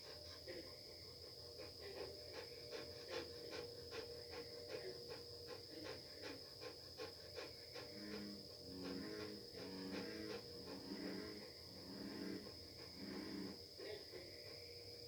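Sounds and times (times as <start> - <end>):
soft rhythmic pulse: 0.0 - 15.0.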